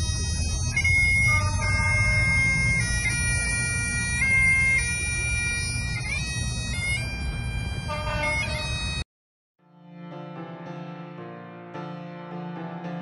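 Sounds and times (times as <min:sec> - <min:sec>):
bagpipes playing slow tune: 0:00.0 - 0:09.0.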